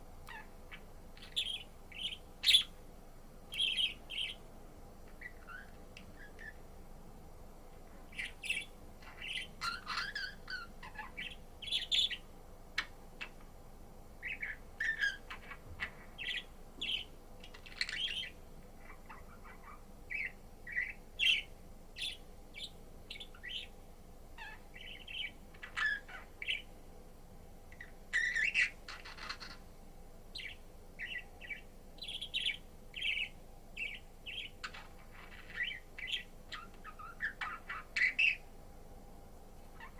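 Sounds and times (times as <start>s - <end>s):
budgerigar chirping: 0.3s - 2.8s, 3.5s - 4.4s, 5.2s - 6.6s, 8.1s - 12.2s, 14.2s - 23.7s, 24.4s - 26.7s, 27.8s - 29.6s, 30.3s - 38.4s.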